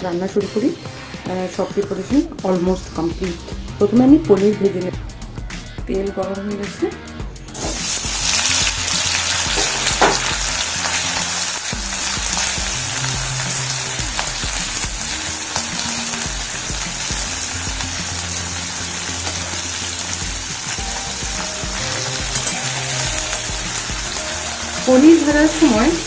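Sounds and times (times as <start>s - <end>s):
soft background music: 0.0s - 26.0s
food sizzling in hot oil: 7.5s - 26.0s
metal spatula stirring: 21.4s - 23.2s.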